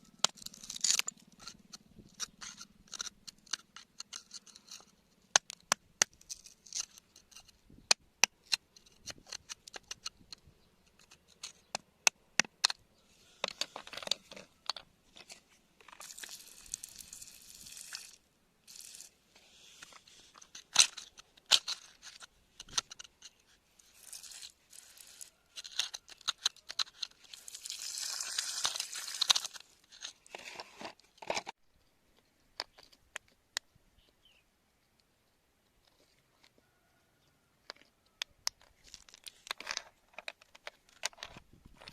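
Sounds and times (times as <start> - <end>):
tools clicking and knocking on rock: 0.2 - 12.8, 13.4 - 18.1, 19.8 - 31.6, 32.2 - 33.7, 37.6 - 41.9
crunching scrapes on rock: 13.2 - 31.6.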